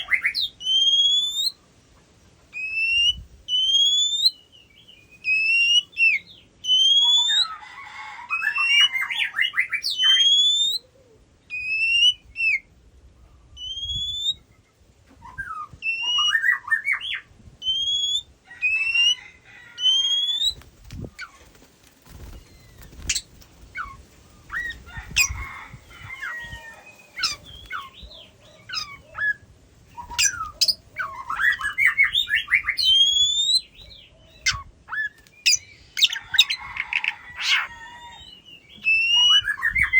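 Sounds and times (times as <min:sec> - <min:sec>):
songbird singing whistled phrases: 0:00.0 - 0:01.6, 0:02.6 - 0:07.6, 0:08.4 - 0:10.9, 0:11.5 - 0:12.7, 0:13.5 - 0:14.6, 0:15.2 - 0:19.2, 0:19.8 - 0:20.6, 0:26.8 - 0:36.6, 0:37.4 - 0:39.9.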